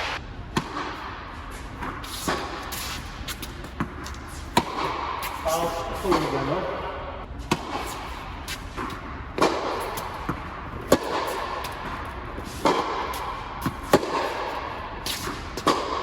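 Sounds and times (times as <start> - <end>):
tennis ball strikes off racquet: 0.0 - 1.1, 3.6 - 5.4, 7.5 - 16.0
tennis ball bounces: 0.0 - 2.8, 3.4 - 5.4, 7.5 - 16.0.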